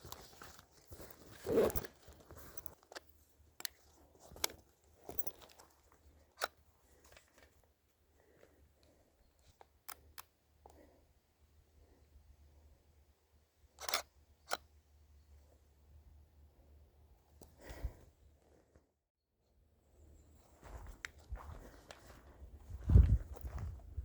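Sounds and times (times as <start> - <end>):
light clicks and rustles of handling: 0.0 - 11.0, 20.4 - 22.4
bag rustling tear: 0.3 - 2.8.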